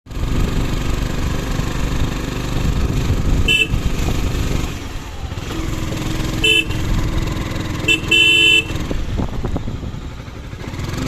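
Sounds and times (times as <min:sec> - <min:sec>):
motor vehicle rumble: 0:00.1 - 0:11.0
short horn beep: 0:03.5 - 0:04.0, 0:06.3 - 0:07.1, 0:07.8 - 0:08.9.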